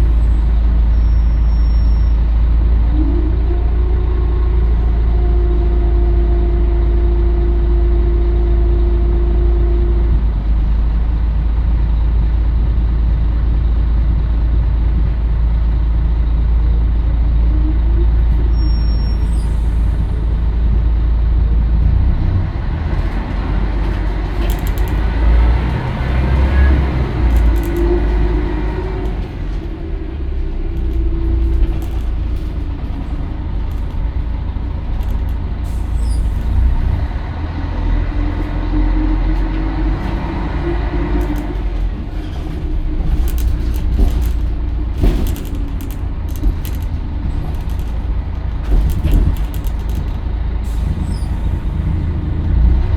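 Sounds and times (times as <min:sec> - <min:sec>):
bus diesel engine running: 0:00.0 - 0:52.9
sharp clicks and rattles: 0:23.2 - 0:36.6, 0:39.4 - 0:51.1.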